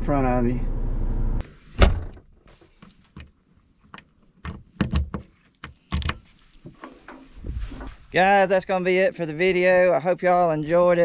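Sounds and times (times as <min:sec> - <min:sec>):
insects droning: 0:01.4 - 0:11.0
sharp knocks and clicks: 0:03.1 - 0:07.2.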